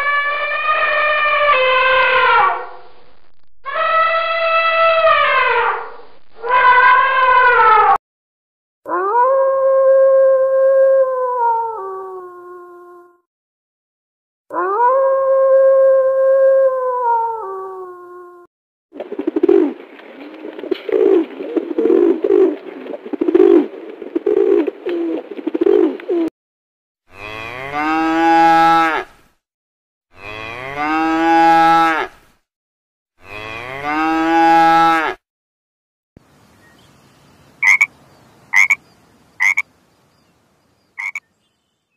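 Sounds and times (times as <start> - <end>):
pigeons cooing: 20.6 - 26.3
calf mooing: 33.2 - 35.2.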